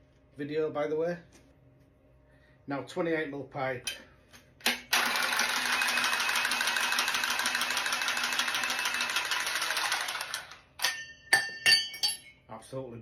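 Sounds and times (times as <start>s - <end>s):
pipe cutter motor cutting: 4.7s - 10.6s.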